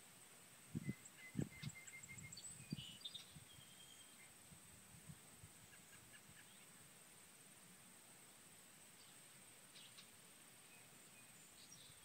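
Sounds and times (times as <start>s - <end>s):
steady high hiss: 0.0s - 12.0s
birdsong: 0.7s - 4.4s, 5.7s - 6.9s, 9.0s - 12.0s.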